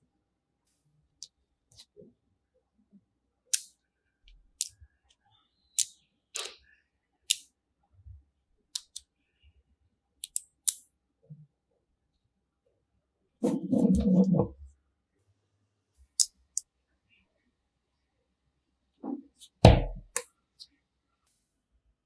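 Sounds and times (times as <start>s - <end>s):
magnetic pieces clicking together: 10.2s - 10.8s.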